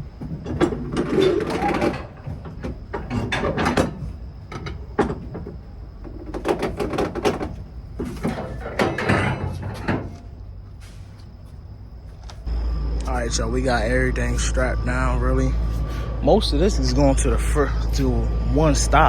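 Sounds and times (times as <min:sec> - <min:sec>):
knocks clanks and rattling: 0:00.0 - 0:11.1.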